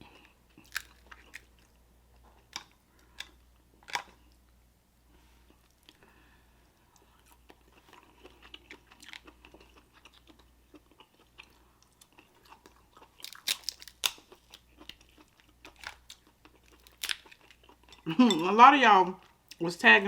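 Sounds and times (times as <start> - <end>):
chewing shellfish: 0.0 - 4.5, 6.8 - 18.3
shell cracks: 13.2 - 14.4.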